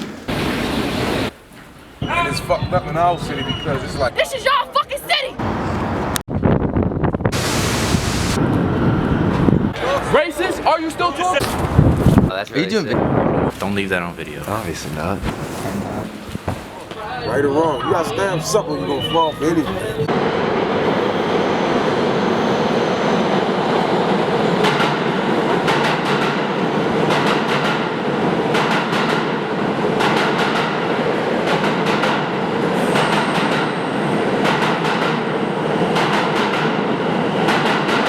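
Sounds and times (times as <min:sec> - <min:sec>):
train rumbling on rails: 0:05.4 - 0:10.1, 0:17.7 - 0:38.0.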